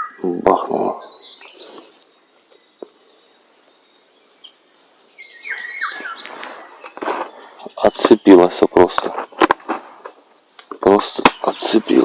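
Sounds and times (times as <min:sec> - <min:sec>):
bird whistling calls: 0:04.0 - 0:07.8.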